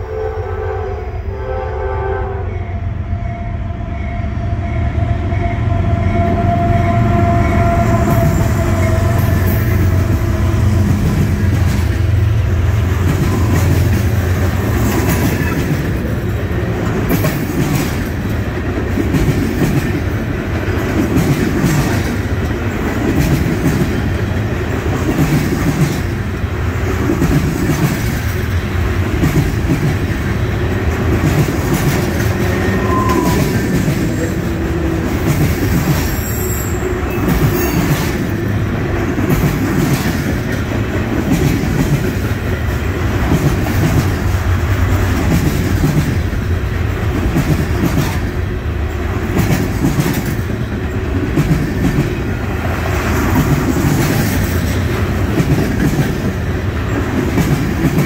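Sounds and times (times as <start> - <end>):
freight car wheels clickety-clack: 39.0 - 46.4, 49.2 - 52.3.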